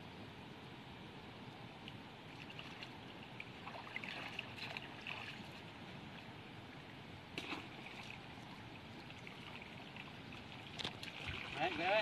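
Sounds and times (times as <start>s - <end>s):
water trickling and sloshing: 1.8s - 12.0s
small water splashes: 2.3s - 5.6s, 7.4s - 12.0s.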